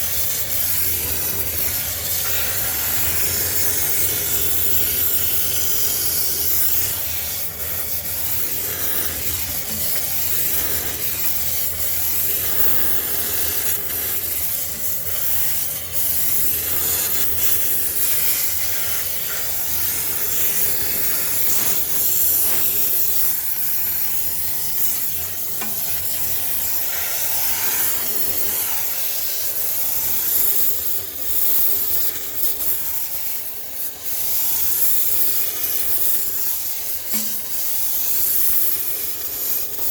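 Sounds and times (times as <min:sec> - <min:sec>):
steam cleaner jet hissing: 0:00.0 - 0:39.9.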